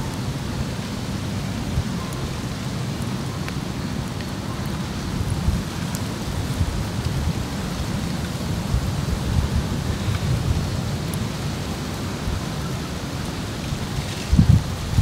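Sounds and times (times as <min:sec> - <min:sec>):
wind buffeting microphone: 0:04.9 - 0:11.1, 0:13.7 - 0:15.0.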